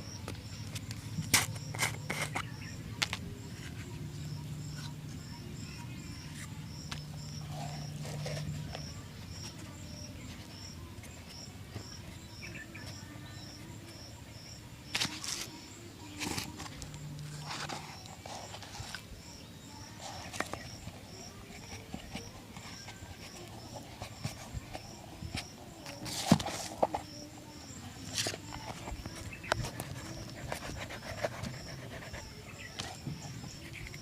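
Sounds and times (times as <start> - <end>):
brush scraping a shoe: 0.6 - 9.4, 16.2 - 19.4, 28.0 - 34.0.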